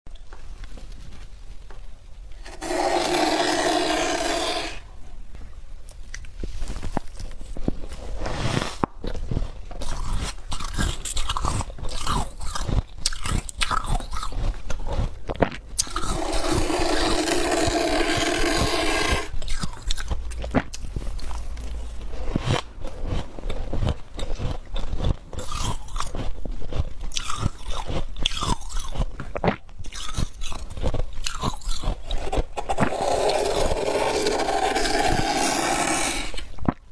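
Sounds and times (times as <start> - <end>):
rasping scraping: 2.4 - 5.0, 15.8 - 19.4, 32.1 - 36.5
frost being chewed crunching: 5.9 - 36.9.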